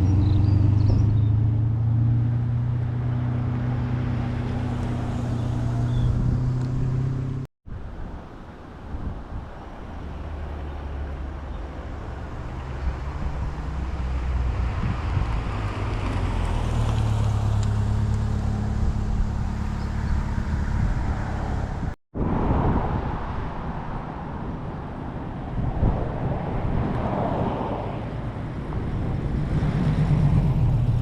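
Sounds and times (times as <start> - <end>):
vehicle engine: 0.0 - 7.5, 10.0 - 22.0, 26.4 - 31.0.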